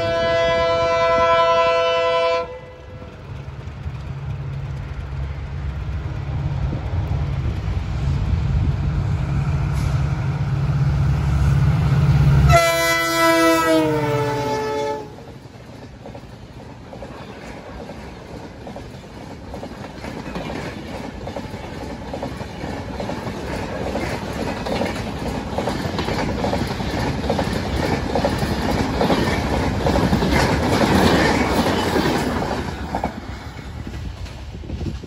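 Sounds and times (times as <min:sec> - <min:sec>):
locomotive horn blast: 0:00.0 - 0:03.1, 0:12.4 - 0:15.3
train rumbling: 0:00.0 - 0:35.0
coaches rolling by: 0:02.6 - 0:08.1.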